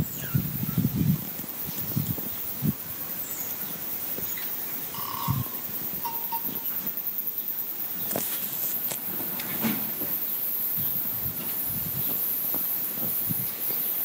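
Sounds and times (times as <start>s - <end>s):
steady high-pitched hiss: 0.0s - 14.0s
short bird calls: 4.3s - 6.8s.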